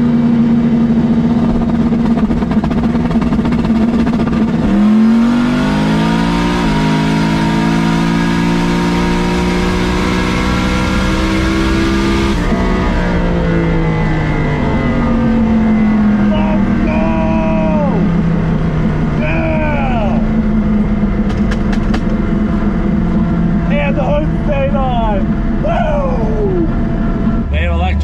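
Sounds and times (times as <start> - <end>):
drag car engine revving: 0.0 - 28.0.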